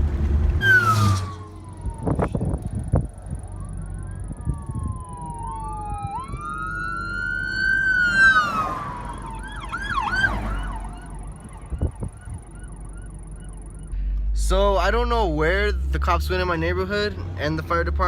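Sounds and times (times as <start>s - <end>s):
emergency vehicle siren wailing: 0.6s - 14.0s.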